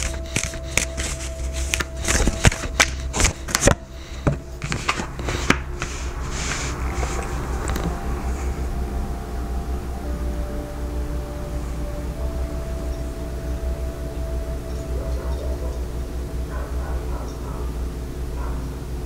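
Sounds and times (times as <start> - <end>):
cards being shuffled: 0.0 - 8.0.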